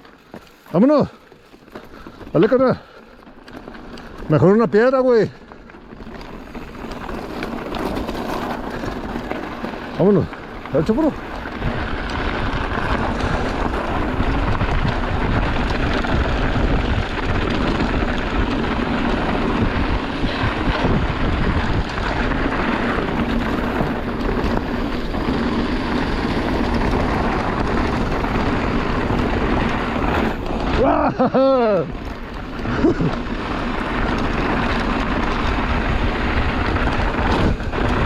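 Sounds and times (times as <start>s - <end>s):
tyres on dirt: 0.0s - 38.0s
bike knocks and rattles: 5.3s - 38.0s
wind on microphone: 11.0s - 31.2s, 34.3s - 38.0s.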